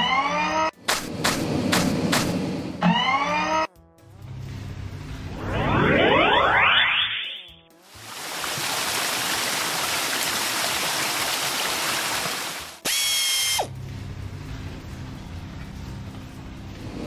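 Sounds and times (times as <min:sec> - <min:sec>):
electronic tone sliding down: 0:05.2 - 0:07.5.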